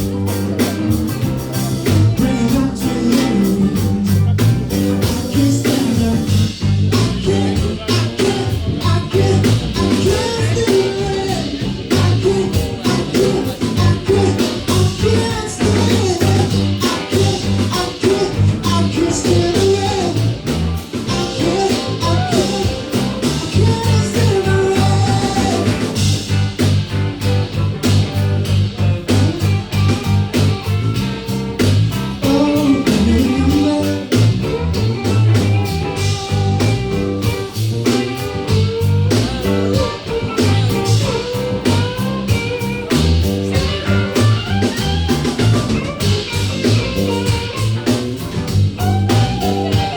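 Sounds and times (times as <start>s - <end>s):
drums: 0.0s - 49.9s
electric guitar: 0.0s - 49.9s
pulsing bass line: 0.0s - 49.9s
person singing: 0.6s - 26.2s, 32.2s - 49.9s.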